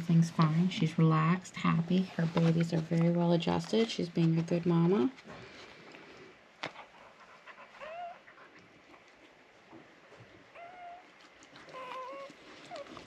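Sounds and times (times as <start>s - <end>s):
puppies squeaking: 7.8s - 8.2s, 10.6s - 13.0s.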